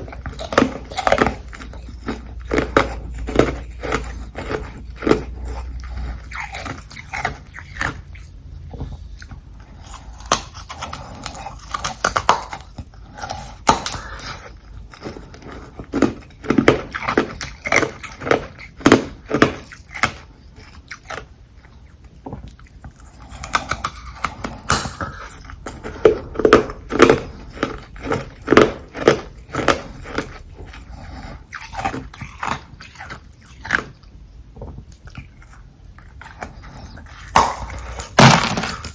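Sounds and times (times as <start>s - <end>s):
crunchy ice chewing: 0.0s - 8.3s, 9.6s - 21.3s, 21.9s - 34.1s, 34.9s - 38.9s.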